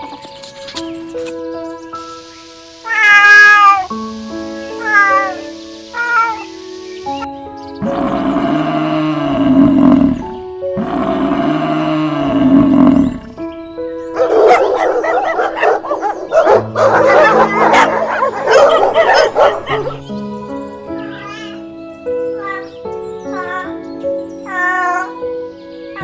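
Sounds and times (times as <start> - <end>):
animal calls: 2.9 - 3.9, 4.8 - 6.5, 14.2 - 20.0
background music: 14.2 - 20.7.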